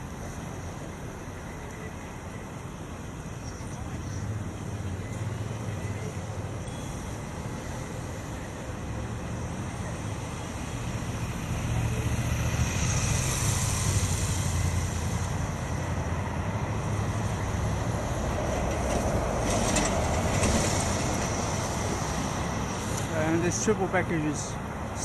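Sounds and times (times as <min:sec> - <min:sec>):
high hiss: 0:00.0 - 0:19.7
road and traffic noise: 0:00.0 - 0:25.0.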